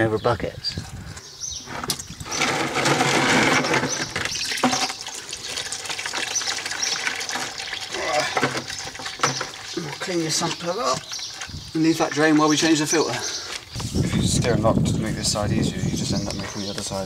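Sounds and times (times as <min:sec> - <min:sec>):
oil pouring into bucket: 0:02.3 - 0:10.5.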